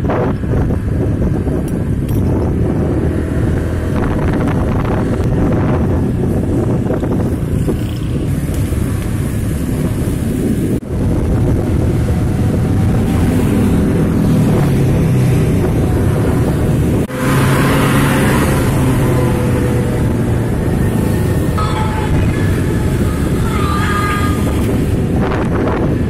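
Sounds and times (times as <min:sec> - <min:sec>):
heavy vehicle engine running: 0:00.0 - 0:26.0
road and wind noise: 0:00.0 - 0:26.0.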